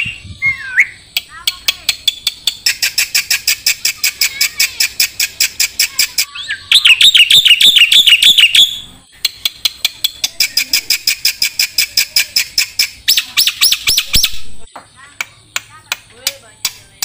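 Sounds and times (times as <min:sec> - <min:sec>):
starling rising whistled notes: 0:00.0 - 0:01.0
starling sharp repeated chips: 0:01.1 - 0:06.3, 0:07.0 - 0:14.5.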